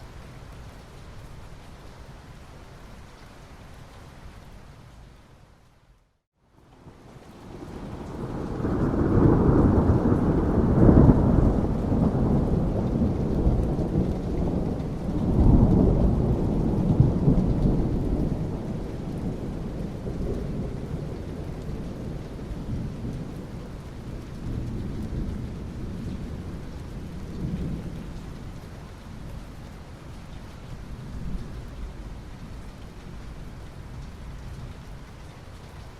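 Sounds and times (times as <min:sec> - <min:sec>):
steady rain: 0:00.0 - 0:35.9
rolling thunder: 0:07.5 - 0:28.5.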